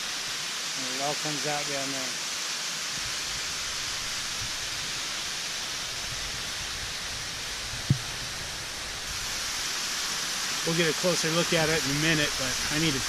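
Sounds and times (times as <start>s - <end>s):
waterfall rushing: 0.0s - 13.0s
wind rumbling on microphone: 3.0s - 5.2s, 5.8s - 9.3s
short thump: 7.9s - 8.1s.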